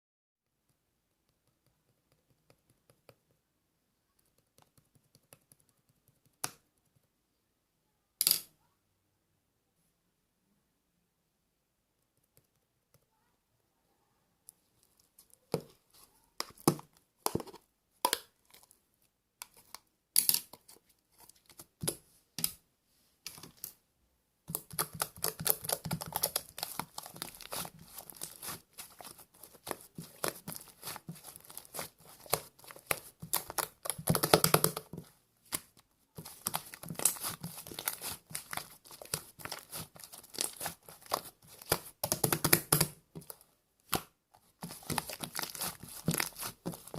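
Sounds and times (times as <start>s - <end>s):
crinkling and tearing: 24.5s - 46.9s.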